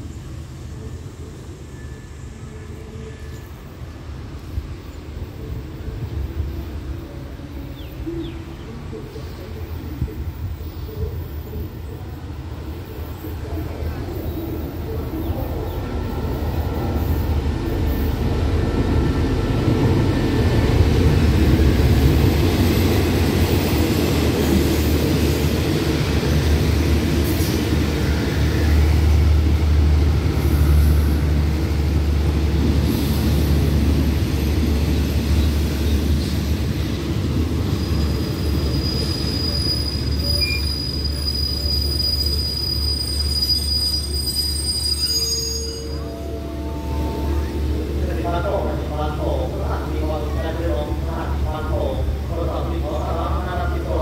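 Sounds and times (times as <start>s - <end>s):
high brake squeal: 37.8s - 47.6s.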